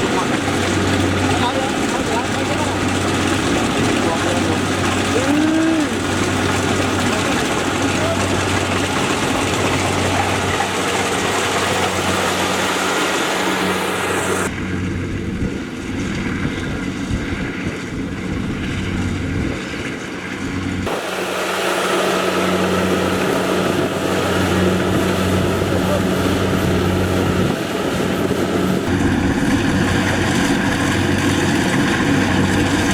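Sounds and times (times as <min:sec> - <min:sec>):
harvester engine hum: 0:00.0 - 0:32.9
high mechanical rush: 0:00.0 - 0:32.9.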